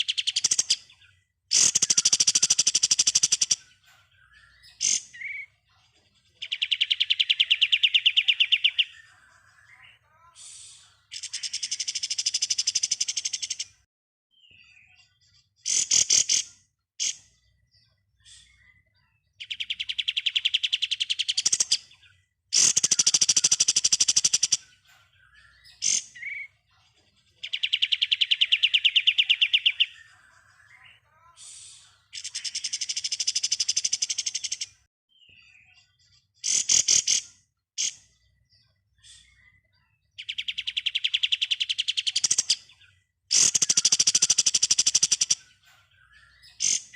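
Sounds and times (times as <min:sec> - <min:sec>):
songbird rattling chatter: 0:01.5 - 0:03.6, 0:22.6 - 0:24.6, 0:32.5 - 0:34.7, 0:43.3 - 0:45.4.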